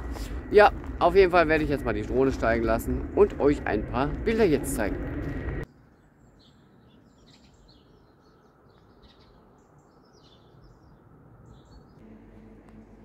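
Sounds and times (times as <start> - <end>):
low outdoor hum: 0.0 - 13.0
faint birds chirping: 5.6 - 12.0.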